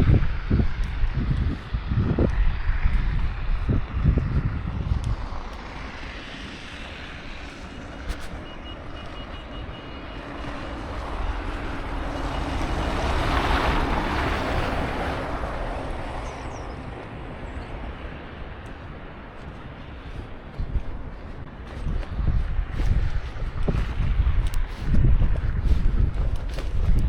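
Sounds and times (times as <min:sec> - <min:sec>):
wind buffeting microphone: 0:00.0 - 0:27.0
vehicle tyres hissing on snow: 0:01.4 - 0:17.1.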